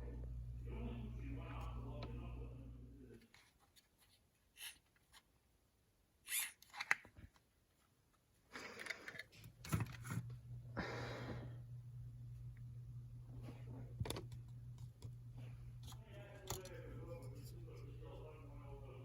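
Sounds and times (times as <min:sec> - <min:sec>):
steady low hum: 0:00.0 - 0:03.6, 0:08.5 - 0:19.0
rustling and scraping handling noises: 0:03.1 - 0:05.4, 0:13.3 - 0:18.4.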